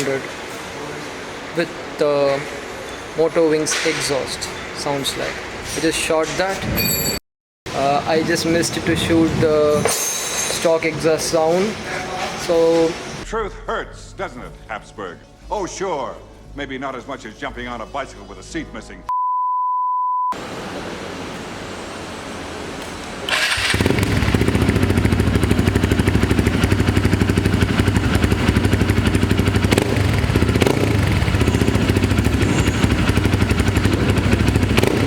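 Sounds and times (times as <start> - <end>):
motorcycle engine idling: 23.5 - 35.0.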